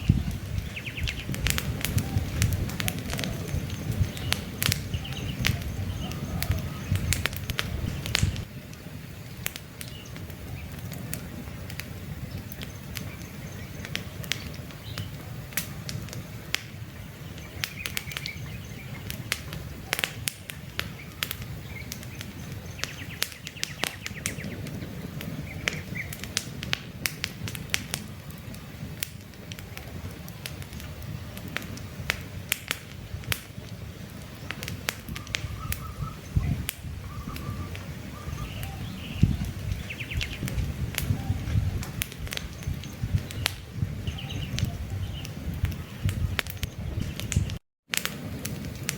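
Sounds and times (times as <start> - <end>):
bird chirps: 0.0 - 1.4, 3.2 - 7.1, 17.0 - 19.3, 20.9 - 26.1, 35.2 - 41.7, 42.5 - 47.5
campfire crackling and popping: 0.0 - 48.9
low rumble of flames: 0.0 - 48.9.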